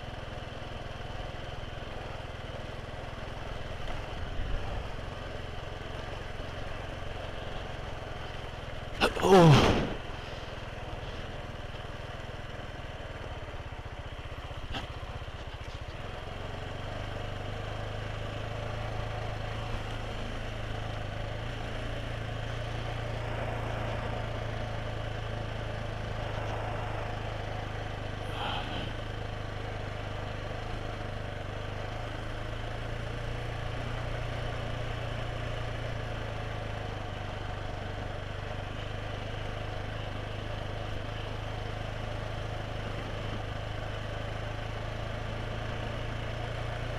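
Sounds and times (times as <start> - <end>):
motorcycle engine hum: 9.7 - 46.9.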